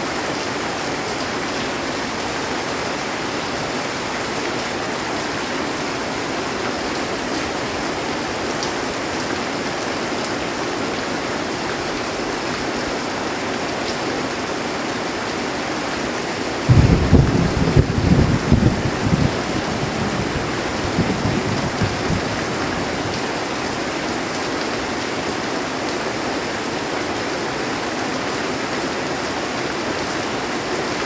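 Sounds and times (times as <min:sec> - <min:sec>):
heavy rain on a metal roof: 0:00.0 - 0:31.0
loud thunder: 0:16.7 - 0:23.2.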